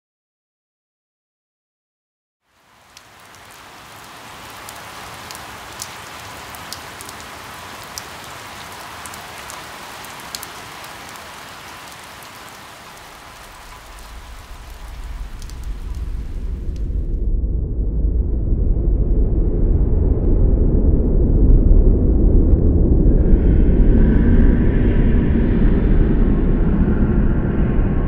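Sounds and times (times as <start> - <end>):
steady rain falling: 2.4 - 17.2
raindrops ticking: 2.5 - 17.1
deep rumble: 13.4 - 28.0.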